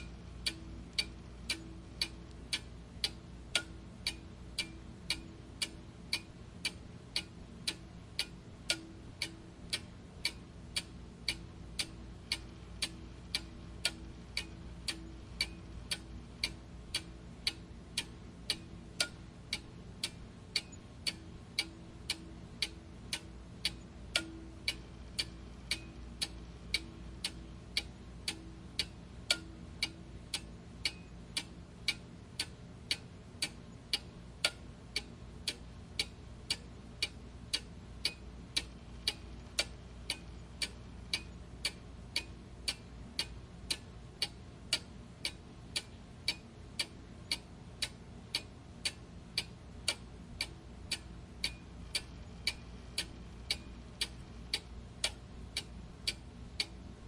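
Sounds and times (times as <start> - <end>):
clock ticking: 0.0 - 57.0
faint low hum: 0.0 - 57.0.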